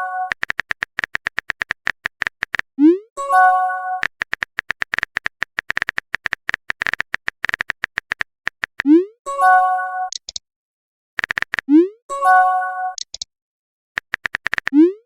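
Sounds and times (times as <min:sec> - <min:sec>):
keyboard typing clicks: 0:00.0 - 0:02.7, 0:04.0 - 0:09.0, 0:10.1 - 0:10.4, 0:11.2 - 0:11.8, 0:13.0 - 0:13.3, 0:14.0 - 0:15.0.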